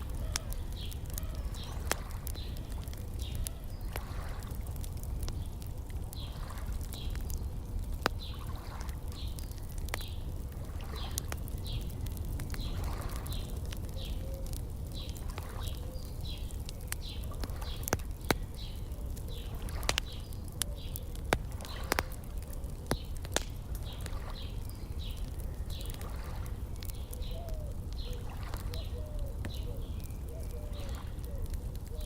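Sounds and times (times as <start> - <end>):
lake water washing: 0.0 - 31.9
wood fire crackling and popping: 0.0 - 32.0.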